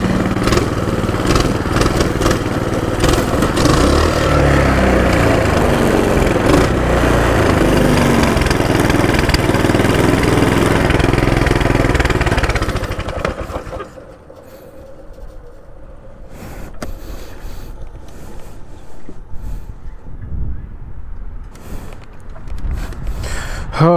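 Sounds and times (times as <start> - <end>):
small engine revving: 0.0 - 14.8.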